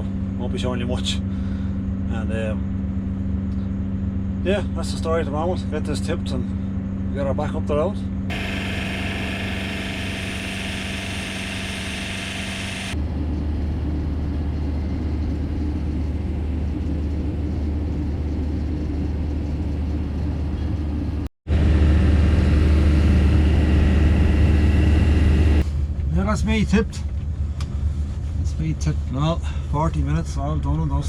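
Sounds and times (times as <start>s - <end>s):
truck engine humming: 8.3s - 13.0s.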